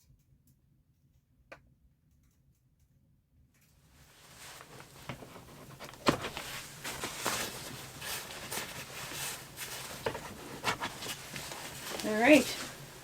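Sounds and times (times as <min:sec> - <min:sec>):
rustling and handling noises: 0:04.0 - 0:13.0.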